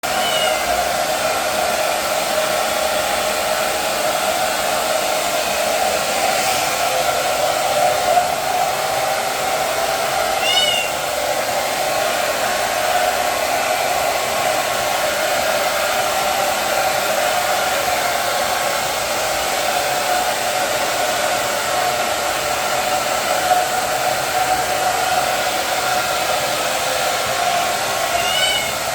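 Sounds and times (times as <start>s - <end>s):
hair dryer blowing: 0.0s - 28.9s
kitten meowing: 0.1s - 0.8s, 10.4s - 11.0s, 28.1s - 28.8s.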